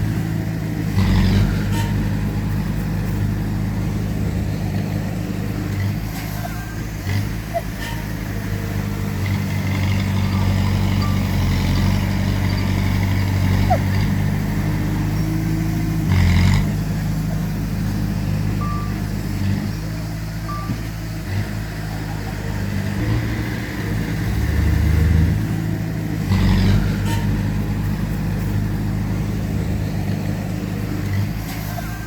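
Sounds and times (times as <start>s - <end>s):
heavy diesel machinery working: 0.0s - 32.0s
short high beeps: 18.6s - 19.0s, 20.5s - 20.8s.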